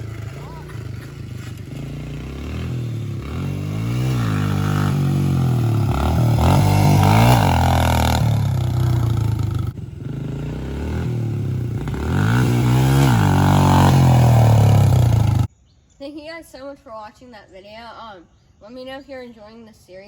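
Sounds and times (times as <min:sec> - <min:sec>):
dirt bike engine revving: 0:00.0 - 0:15.5.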